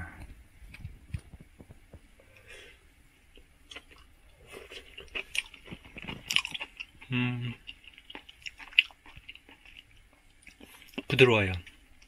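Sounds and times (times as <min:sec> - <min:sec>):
person chewing: 0:03.3 - 0:12.0.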